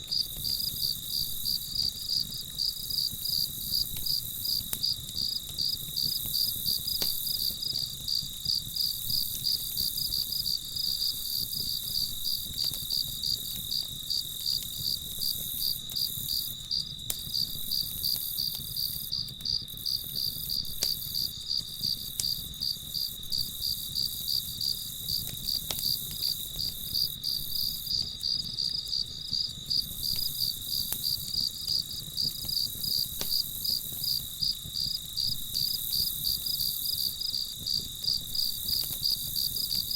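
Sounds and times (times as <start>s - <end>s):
crickets chirping: 0.1s - 39.9s.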